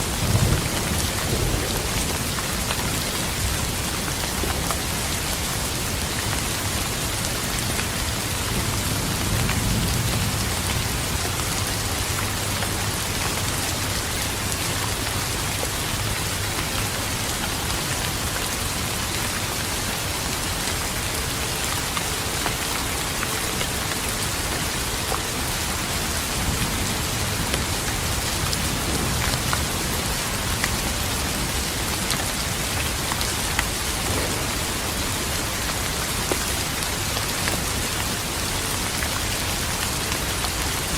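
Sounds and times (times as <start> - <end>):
distant thunder rumble: 0.0 - 12.4, 26.3 - 38.9
heavy rain falling: 0.0 - 40.9.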